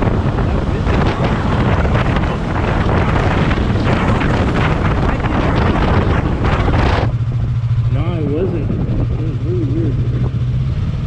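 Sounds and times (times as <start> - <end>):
vehicle and road noise: 0.0 - 11.0
wind buffeting microphone: 0.0 - 11.0.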